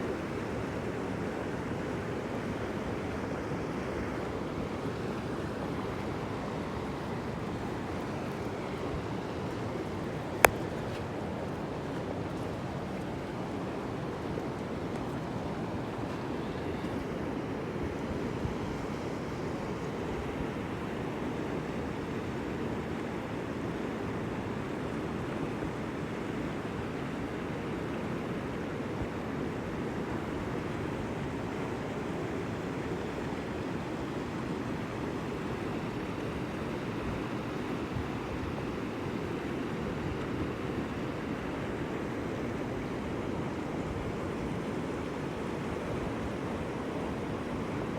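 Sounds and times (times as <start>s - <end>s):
water rushing: 0.0s - 25.3s, 29.2s - 47.9s.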